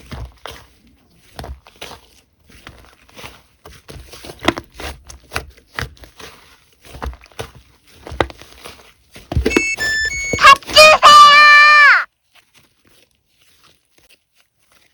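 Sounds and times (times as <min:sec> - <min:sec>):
short electronic tones: 0:09.5 - 0:12.0.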